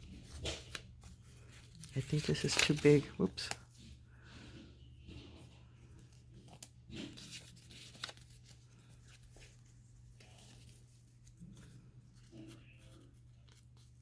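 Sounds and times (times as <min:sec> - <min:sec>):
paper taps and rustles: 0:00.0 - 0:03.9, 0:05.1 - 0:09.6.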